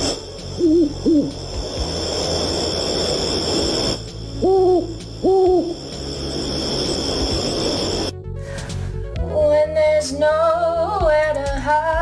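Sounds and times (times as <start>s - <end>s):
low rumbling background: 0.0s - 11.2s
short hooting calls: 0.5s - 1.4s, 4.3s - 5.9s.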